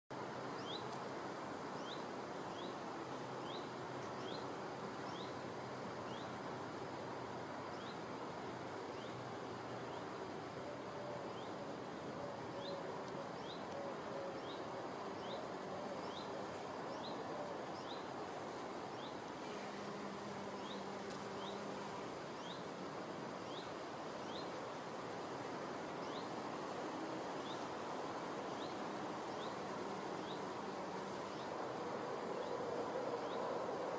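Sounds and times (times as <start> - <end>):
outdoor hiss: 0.1 - 33.9
bumblebee buzzing: 19.4 - 22.2.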